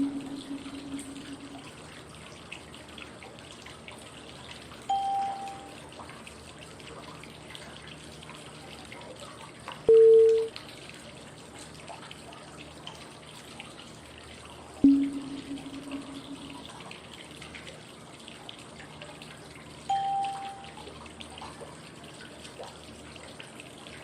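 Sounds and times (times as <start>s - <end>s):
flowing water white noise: 0.0s - 2.0s, 4.8s - 6.0s, 14.8s - 17.0s, 19.9s - 21.1s
short cue tones: 9.9s - 10.5s, 19.9s - 20.8s.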